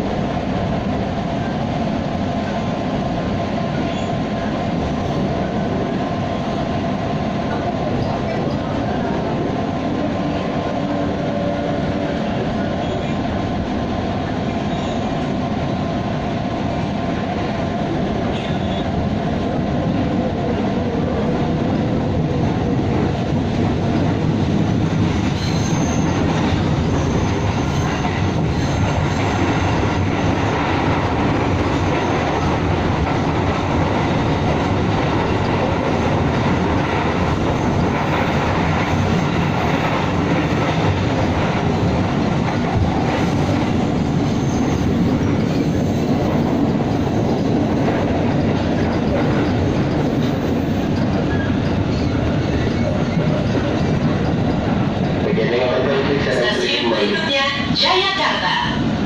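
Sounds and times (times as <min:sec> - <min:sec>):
train wheels rumbling on rails: 0:00.0 - 0:59.0
high wheel squeal: 0:25.4 - 0:26.2.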